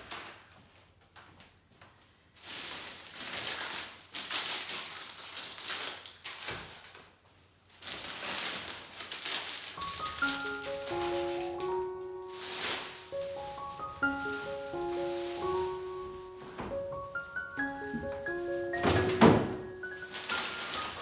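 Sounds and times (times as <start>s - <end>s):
packaging rustling and handling: 0.0s - 21.0s
music: 9.8s - 21.0s.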